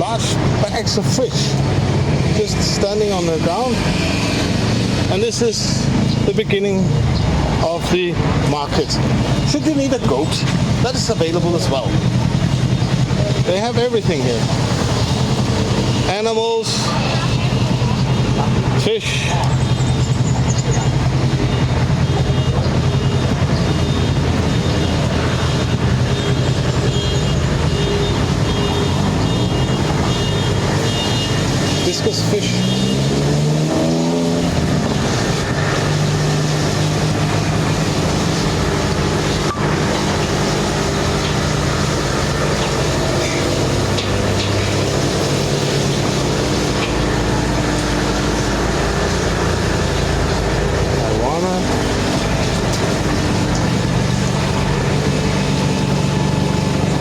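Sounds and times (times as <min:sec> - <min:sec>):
street traffic hum: 0:00.0 - 0:57.0
motor droning: 0:32.6 - 0:57.0.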